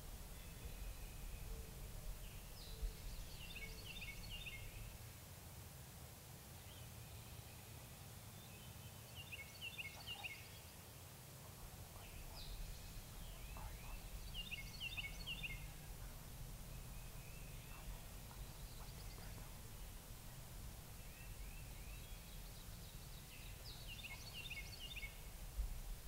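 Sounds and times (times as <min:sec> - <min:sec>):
wind rumble: 0:11.7 - 0:26.0.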